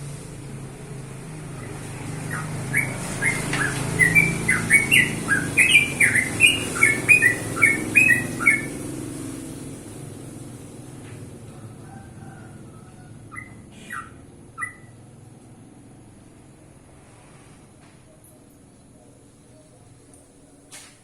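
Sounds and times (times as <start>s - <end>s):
bird chirping song: 1.6s - 9.1s, 13.3s - 15.0s.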